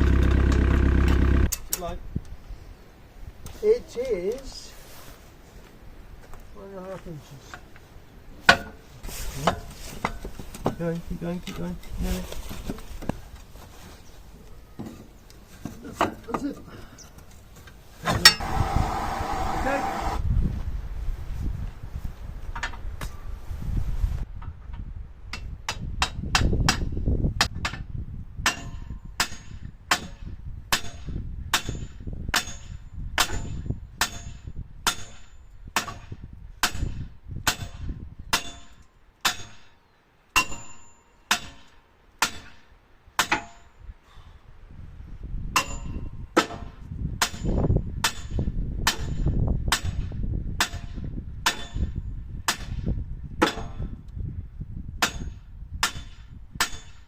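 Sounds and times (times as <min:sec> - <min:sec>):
low rumble: 0:00.0 - 0:01.5
hammer clanging on steel: 0:40.4 - 0:42.6, 0:45.6 - 0:46.6.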